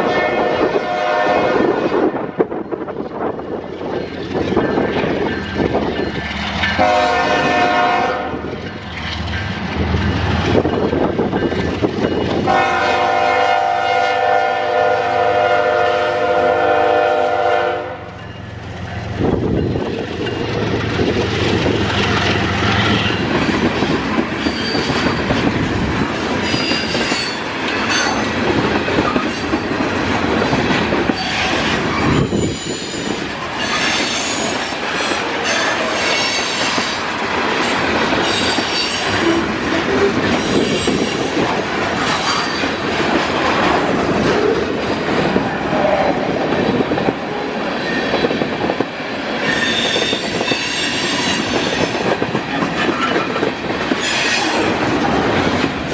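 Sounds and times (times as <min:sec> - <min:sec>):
train wheels clattering on rails: 0:00.6 - 0:14.1, 0:18.1 - 0:55.9
high-pitched wheel squeal: 0:24.4 - 0:25.2, 0:31.2 - 0:37.0, 0:38.2 - 0:41.4, 0:49.4 - 0:52.0.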